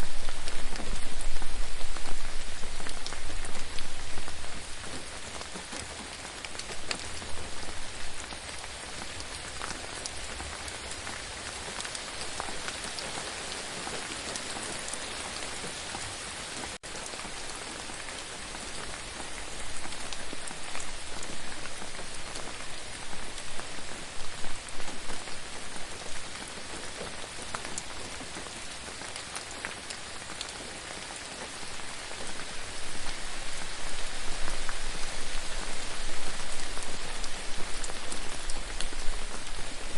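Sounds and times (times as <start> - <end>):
raindrops ticking on a surface: 0.0 - 39.9
steady rain: 0.0 - 39.9.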